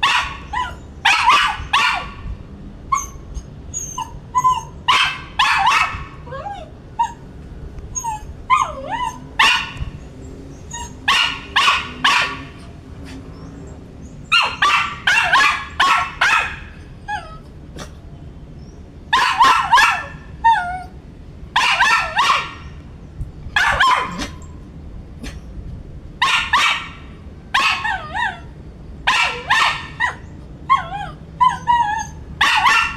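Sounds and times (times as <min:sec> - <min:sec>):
dog whining: 0:00.0 - 0:01.8, 0:02.9 - 0:07.3, 0:07.9 - 0:09.8, 0:10.7 - 0:11.5, 0:16.3 - 0:18.0, 0:19.7 - 0:21.0, 0:27.6 - 0:28.6, 0:29.2 - 0:32.9
dog barking: 0:00.0 - 0:02.2, 0:04.6 - 0:06.2, 0:08.5 - 0:09.9, 0:10.8 - 0:12.6, 0:14.3 - 0:16.8, 0:19.1 - 0:20.2, 0:21.6 - 0:22.7, 0:23.6 - 0:24.4, 0:26.2 - 0:27.0, 0:27.6 - 0:28.5, 0:29.1 - 0:31.6, 0:32.4 - 0:32.9.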